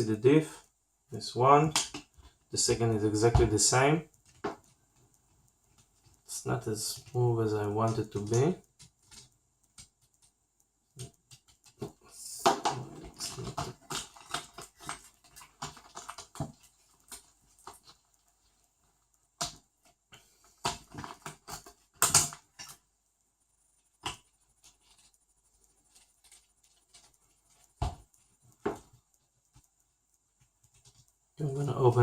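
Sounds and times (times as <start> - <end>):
taps and knocks of parts: 1.7 - 2.5, 3.2 - 7.2, 7.8 - 18.1, 19.3 - 22.9, 25.9 - 31.2
small parts clicking and rattling: 3.6 - 31.4.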